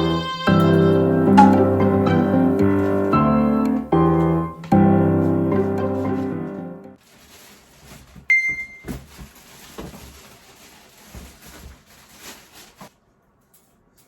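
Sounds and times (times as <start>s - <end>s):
appliance beep: 1.4s - 1.8s, 8.3s - 8.9s
things knocking and rustling: 7.2s - 13.0s.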